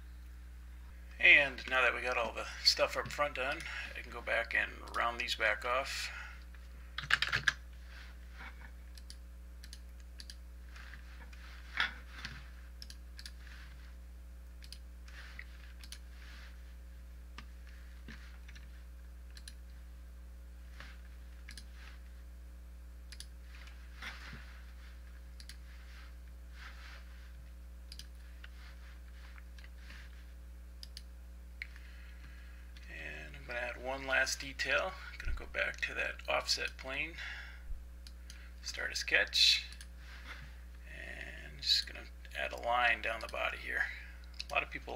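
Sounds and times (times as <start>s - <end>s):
low electrical hum: 0.0s - 44.9s
computer mouse and keyboard clicks: 7.0s - 7.6s, 14.6s - 16.0s.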